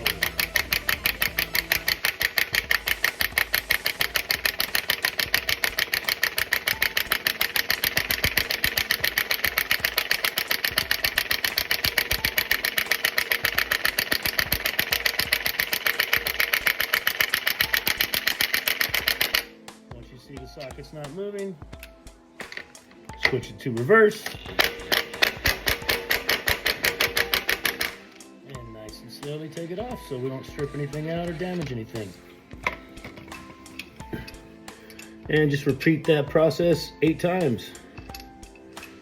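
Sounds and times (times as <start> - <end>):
impact wrench hammering: 0.0 - 19.6, 24.2 - 28.2, 30.6 - 36.4.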